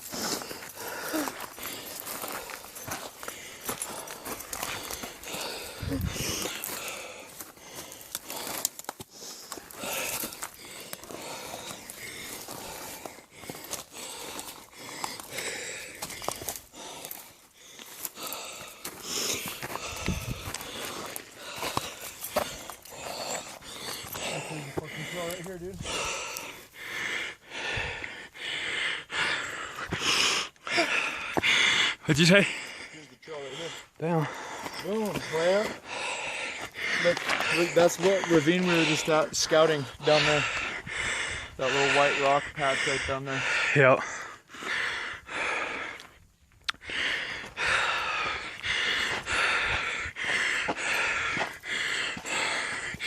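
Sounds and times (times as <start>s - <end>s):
person breathing heavily: 0.0s - 53.0s.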